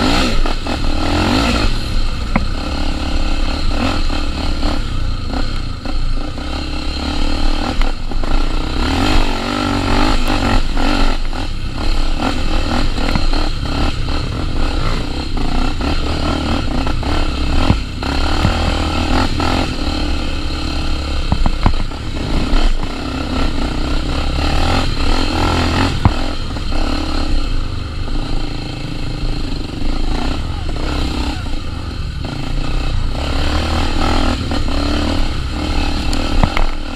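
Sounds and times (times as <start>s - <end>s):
motorcycle engine revving: 0.0s - 36.9s
bike knocks and rattles: 2.1s - 2.8s, 16.6s - 19.8s, 21.2s - 23.3s, 24.6s - 26.8s, 36.2s - 36.9s.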